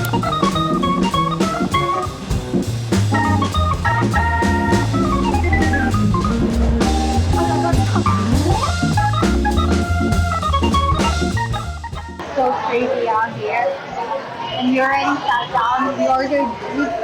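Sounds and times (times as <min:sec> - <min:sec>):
walking bass line: 0:00.0 - 0:12.3
drum kit: 0:00.0 - 0:12.4
organ jazz music: 0:00.0 - 0:12.4.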